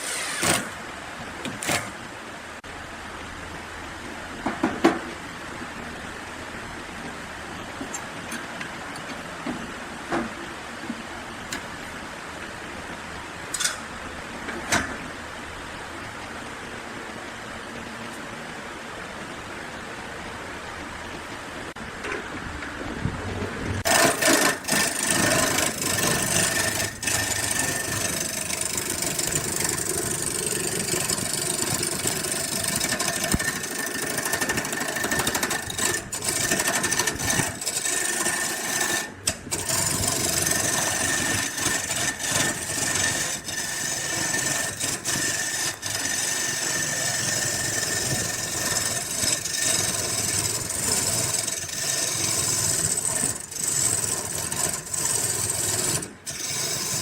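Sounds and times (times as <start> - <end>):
woodworking power tool whining: 0.0 - 2.0, 23.8 - 57.0
steady low hiss: 0.0 - 51.5.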